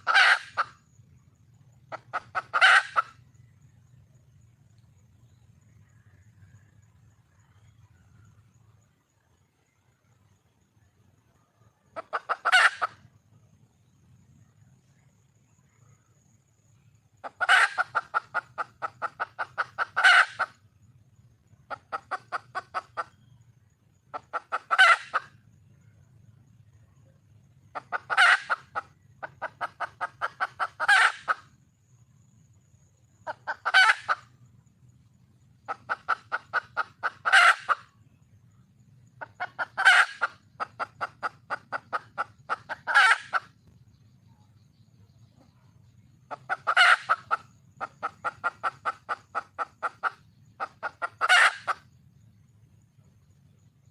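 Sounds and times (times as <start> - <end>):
hen clucking and calling: 0.0 - 3.7, 11.8 - 13.6, 17.2 - 25.7, 27.4 - 31.6, 32.4 - 34.4, 35.1 - 52.0.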